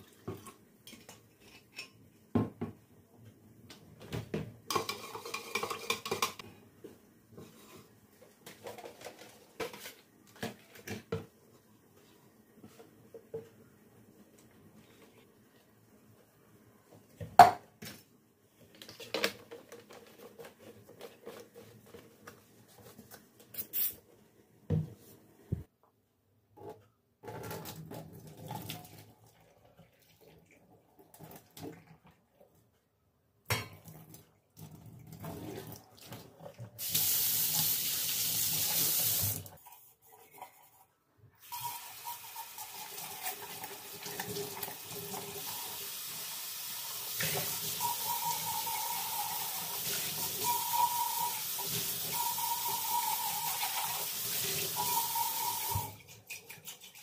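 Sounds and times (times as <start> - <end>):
clicks and knocks of kitchen items: 3.6 - 6.6, 7.4 - 11.4, 17.2 - 23.3
kitchen tap running into sink: 33.9 - 39.5, 41.4 - 57.0.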